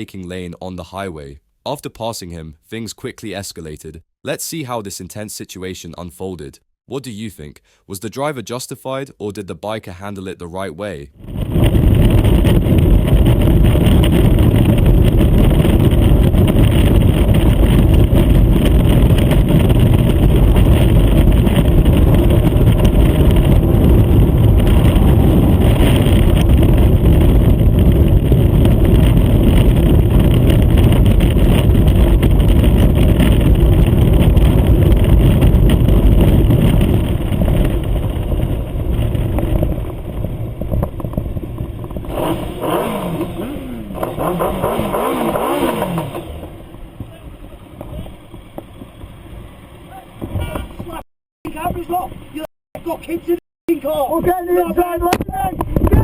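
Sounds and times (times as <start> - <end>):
wind noise: 11.1 - 56.0
motorcycle engine: 11.2 - 51.0.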